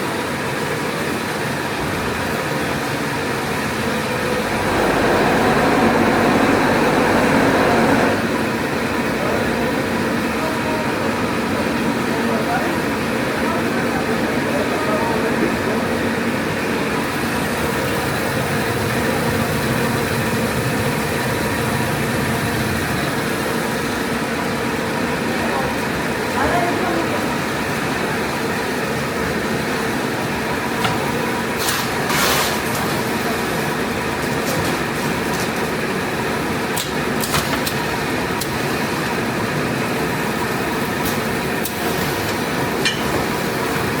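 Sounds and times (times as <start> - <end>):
machine hum: 3.5 - 9.0, 16.0 - 25.2.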